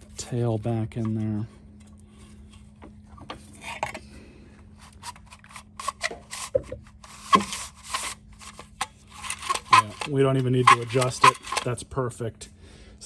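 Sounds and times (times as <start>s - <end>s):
starter rope rubbing and rasping: 4.7s - 11.8s.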